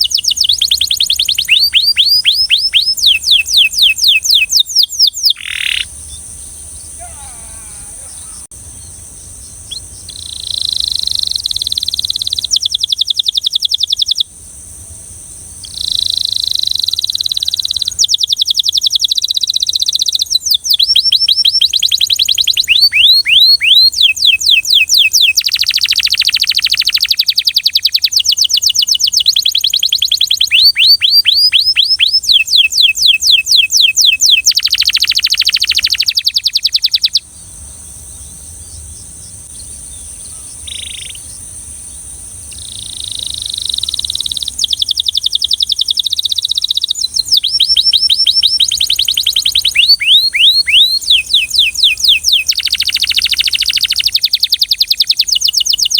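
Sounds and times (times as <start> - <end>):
canary singing trills: 0.0 - 14.3, 15.6 - 55.9.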